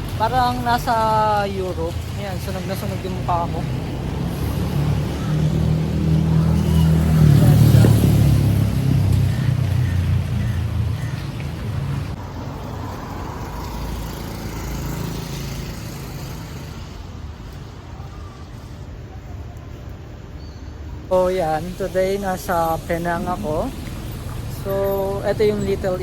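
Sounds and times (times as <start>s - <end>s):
vehicle engine passing: 2.9s - 17.0s.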